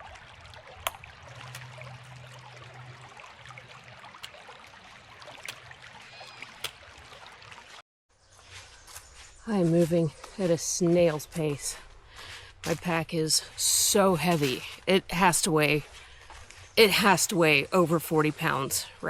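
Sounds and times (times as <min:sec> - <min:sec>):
creek trickling: 0:00.0 - 0:07.8.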